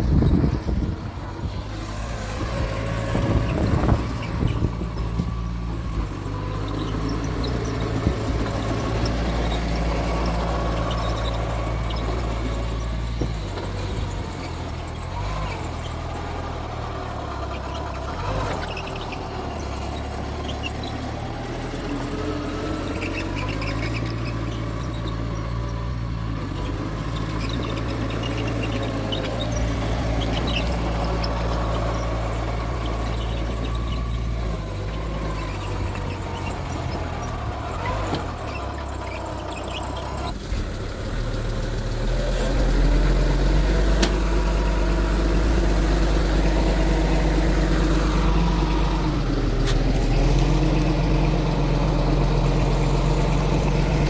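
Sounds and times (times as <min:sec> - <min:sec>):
wavering squeals: 0:00.0 - 0:40.4
bulldozer diesel engine running: 0:00.0 - 0:54.0.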